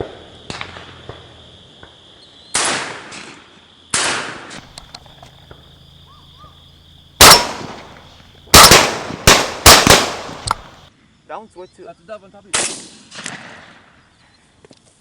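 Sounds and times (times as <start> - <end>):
insect buzz: 4.6 - 11.2
shotgun shots echoing: 7.2 - 10.9.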